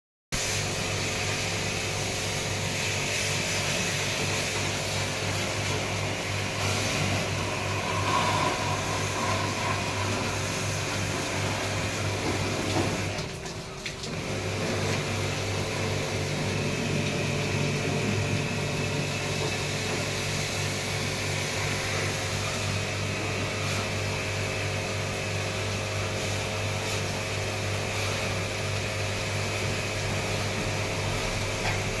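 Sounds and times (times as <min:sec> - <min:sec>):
motor-driven machine hum: 0:05.0 - 0:12.3.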